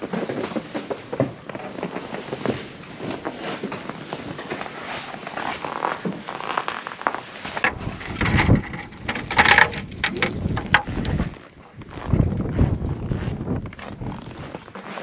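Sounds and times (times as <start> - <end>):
wind gusting on microphone: 7.6 - 14.6.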